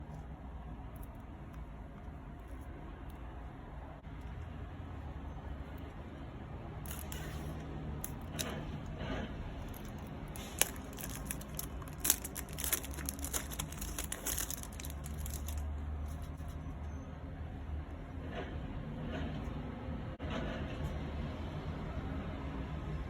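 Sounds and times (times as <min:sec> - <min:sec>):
plastic wrapping crinkling: 0:06.9 - 0:07.2, 0:08.0 - 0:08.9, 0:09.6 - 0:16.4.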